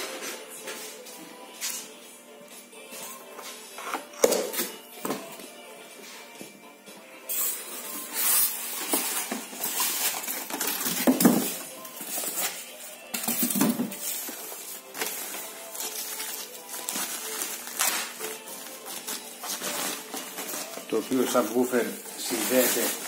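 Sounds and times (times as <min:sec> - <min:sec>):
packaging rustling and scraping: 0:07.3 - 0:23.0.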